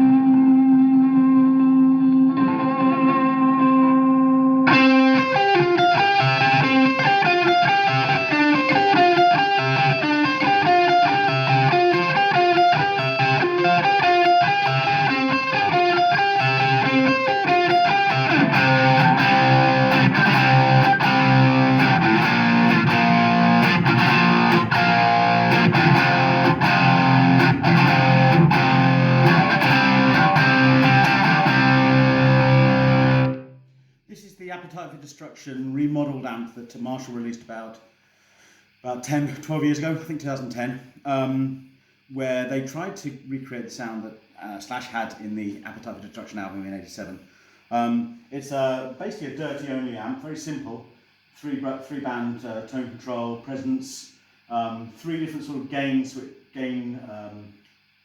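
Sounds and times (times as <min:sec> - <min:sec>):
distorted electric guitar: 0:00.0 - 0:33.7.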